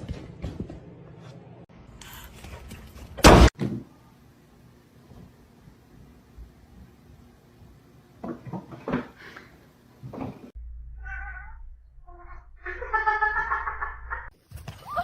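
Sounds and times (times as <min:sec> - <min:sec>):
cat meowing: 0:11.0 - 0:12.4.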